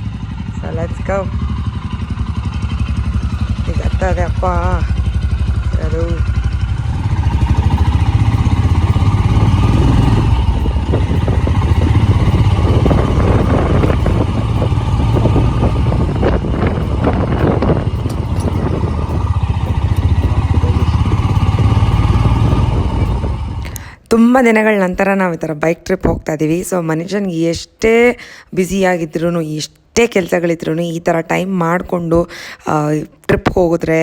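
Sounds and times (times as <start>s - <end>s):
motorcycle engine running: 0.0s - 23.9s
knocks and rattles: 6.2s - 23.7s.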